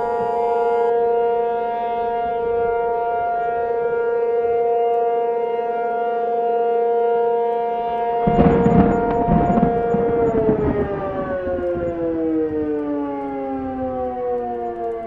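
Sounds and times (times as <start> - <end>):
warning siren wailing: 0.0 - 15.0
rough burst of noise: 8.3 - 12.0.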